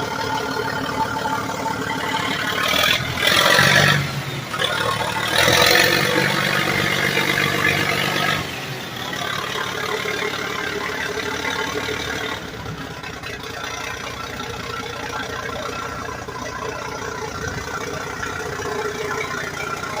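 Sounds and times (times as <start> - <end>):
bulldozer engine running: 0.0 - 20.0.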